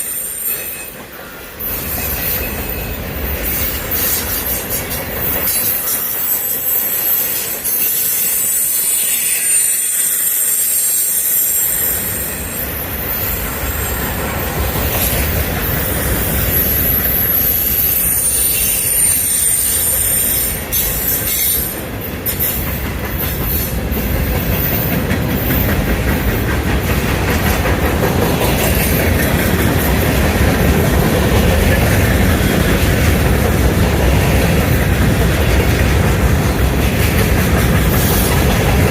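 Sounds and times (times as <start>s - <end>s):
clickety-clack over rail joints: 0.0s - 7.9s, 11.8s - 38.9s
train wheels squealing: 0.0s - 27.6s, 37.6s - 38.9s
freight train rumble: 0.0s - 38.9s.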